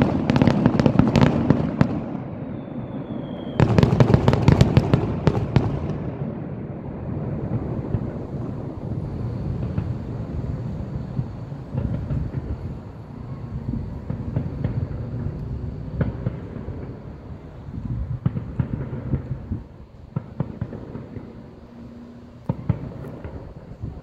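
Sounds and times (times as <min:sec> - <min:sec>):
fireworks popping and cracking: 0:00.0 - 0:24.0
sharp fireworks bangs: 0:00.0 - 0:24.0
low rumble: 0:05.8 - 0:24.0.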